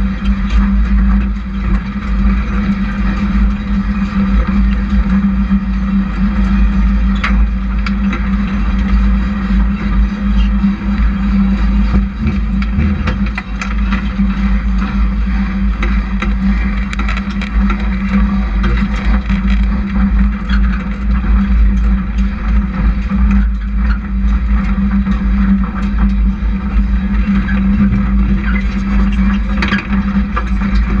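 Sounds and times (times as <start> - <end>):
race truck engines droning: 7.8 - 19.0, 25.6 - 31.0.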